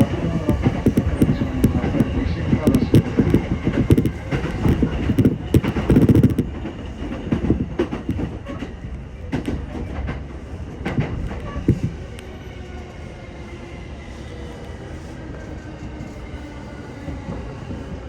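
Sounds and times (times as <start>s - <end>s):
train wheels clacking over rail joints: 0.0s - 12.1s
train rumble with faint whine: 0.0s - 18.0s.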